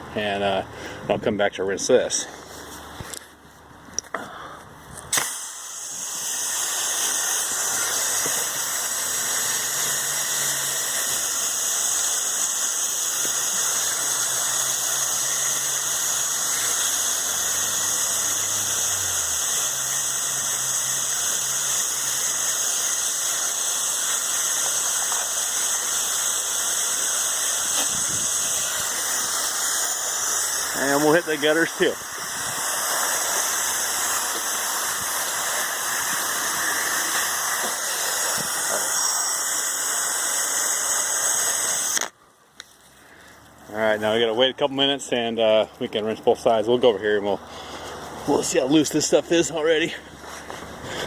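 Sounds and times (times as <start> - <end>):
faint engine hum: 0.0 - 5.2, 44.9 - 49.2
pressure washer spray hissing: 5.1 - 42.0.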